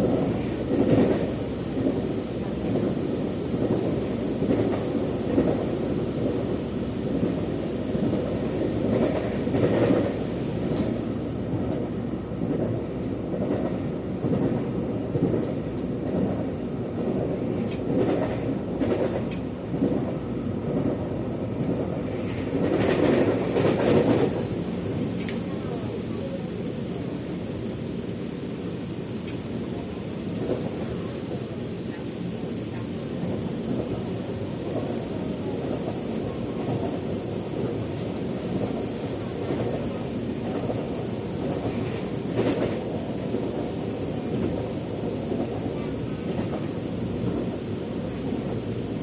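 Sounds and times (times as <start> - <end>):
metro train rumbling on track: 0.0 - 49.0.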